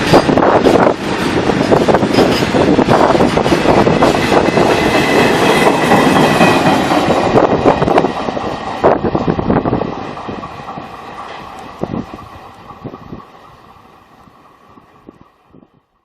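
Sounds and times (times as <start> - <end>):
freight train wheels clattering: 0.0 - 15.4.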